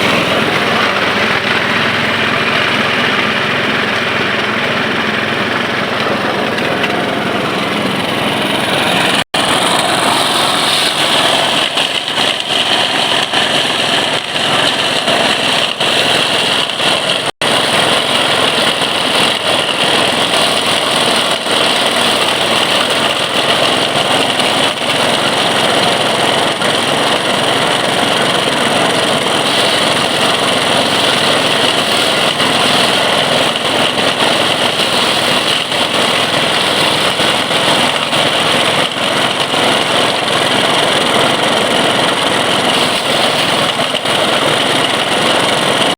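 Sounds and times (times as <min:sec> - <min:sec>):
rice thresher running: 0:00.0 - 0:45.9.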